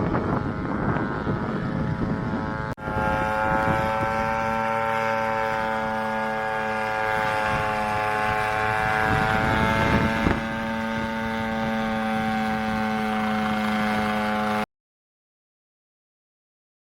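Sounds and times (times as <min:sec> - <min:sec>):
helicopter engine and rotors whining: 0:00.0 - 0:14.7.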